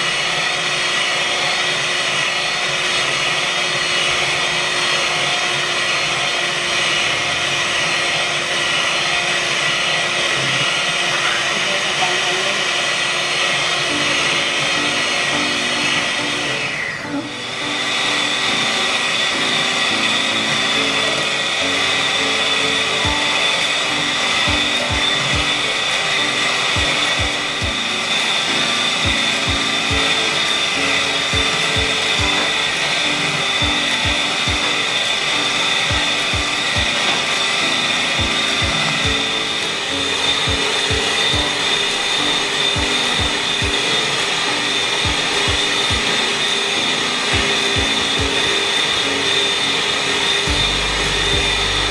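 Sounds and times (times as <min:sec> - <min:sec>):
kitchen appliance motor whining: 0:00.0 - 0:51.9
background music with a beat: 0:22.2 - 0:43.9, 0:45.0 - 0:46.3, 0:47.0 - 0:48.7, 0:50.5 - 0:51.9.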